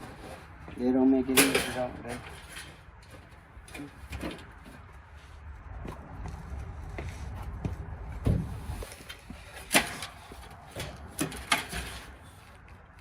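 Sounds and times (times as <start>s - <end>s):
clicks and knocks on metal panels: 0.0s - 4.9s, 9.0s - 12.3s.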